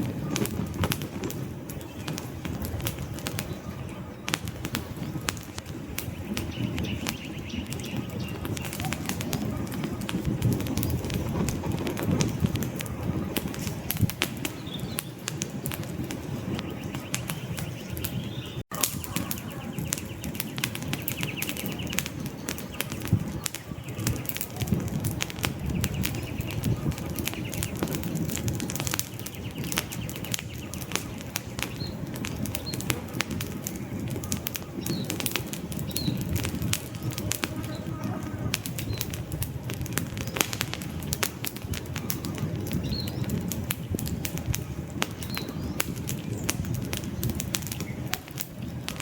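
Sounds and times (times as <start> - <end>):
campfire crackling and popping: 0.0 - 49.0
low rumble of flames: 0.0 - 49.0
faint bird chirps: 16.5 - 24.8.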